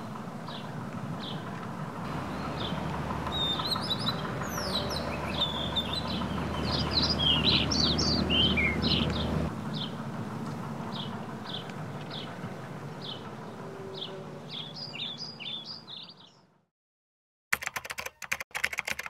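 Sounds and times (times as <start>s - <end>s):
small birds chirping: 0.0s - 10.0s, 10.9s - 16.5s
low steady rumble: 0.0s - 13.8s.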